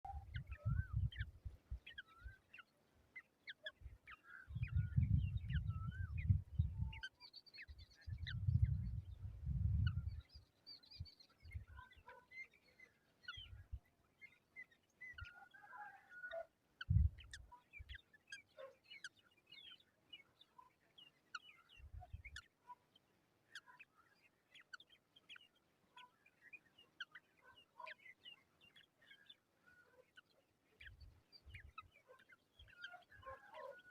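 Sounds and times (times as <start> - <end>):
bird chirps and calls: 0.1 - 33.9
low rumble on microphone: 4.6 - 6.9, 8.0 - 10.2.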